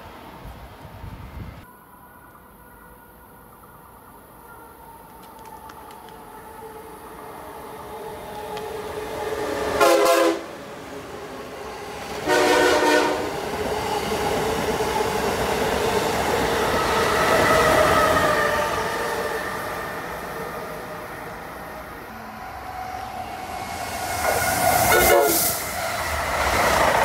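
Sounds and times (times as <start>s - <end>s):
train passing: 0.0s - 27.0s
train horn blasts: 9.8s - 10.5s, 12.2s - 13.4s, 24.8s - 25.6s.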